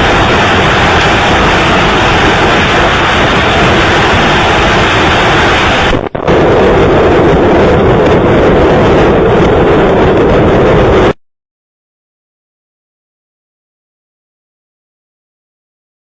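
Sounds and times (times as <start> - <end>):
distorted vehicle and wind roar: 0.0 - 11.2.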